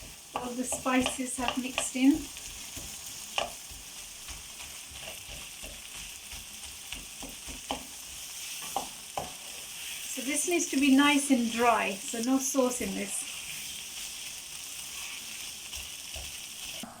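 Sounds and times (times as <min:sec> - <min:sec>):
food sizzling in frying pan: 0:00.0 - 0:17.0
spoon knocking against pan: 0:00.3 - 0:03.7, 0:04.3 - 0:08.0, 0:08.6 - 0:09.4.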